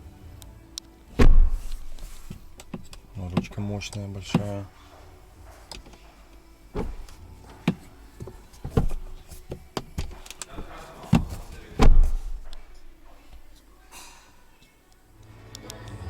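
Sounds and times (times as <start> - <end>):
deep thump: 1.2 - 3.5, 6.7 - 12.9
car interior fittings clicking: 1.2 - 4.7, 5.4 - 13.6.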